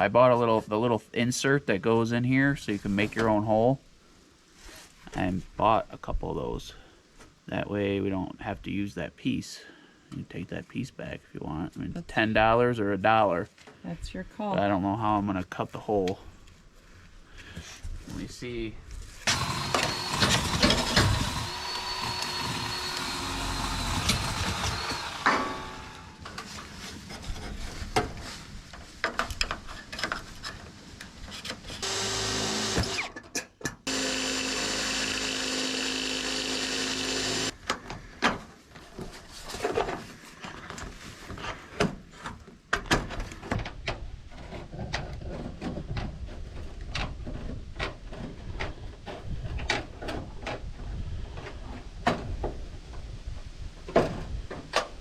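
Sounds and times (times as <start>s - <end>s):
power drill running: 19.2s - 26.3s, 31.8s - 33.1s, 33.9s - 37.6s.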